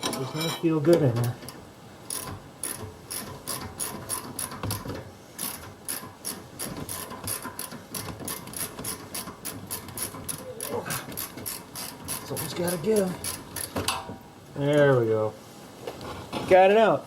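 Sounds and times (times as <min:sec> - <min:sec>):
ratchet wrench clicking: 0:02.1 - 0:04.8, 0:05.4 - 0:13.8.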